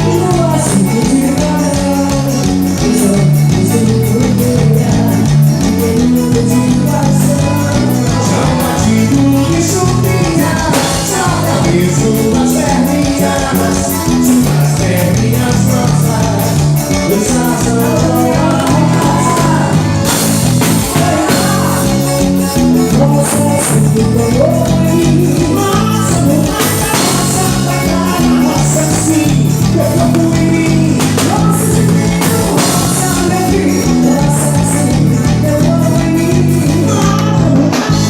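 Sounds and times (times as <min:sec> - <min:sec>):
band music with walking bass: 0:00.0 - 0:38.0
fast percussion beat: 0:00.0 - 0:38.0
person singing: 0:00.0 - 0:38.0.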